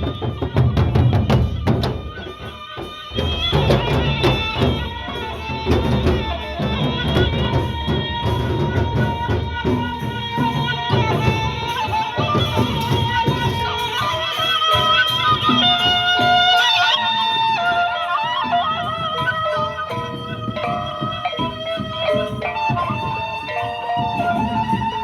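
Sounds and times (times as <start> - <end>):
cymbals striking: 0.0 - 25.0
wavering held melody: 0.3 - 25.0
large drums striking: 3.2 - 14.0.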